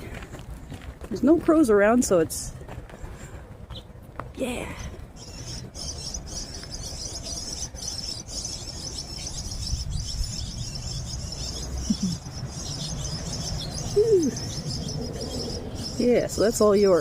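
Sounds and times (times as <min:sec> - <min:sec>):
nestlings chirping: 0:04.5 - 0:17.0.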